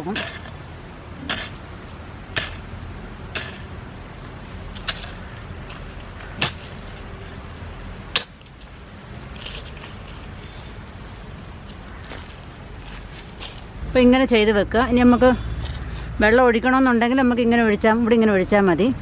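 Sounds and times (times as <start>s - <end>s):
hoe chopping into soil: 0.2s - 0.6s, 1.2s - 1.6s, 2.4s - 2.7s, 3.3s - 3.7s, 4.8s - 7.1s, 8.1s - 8.4s.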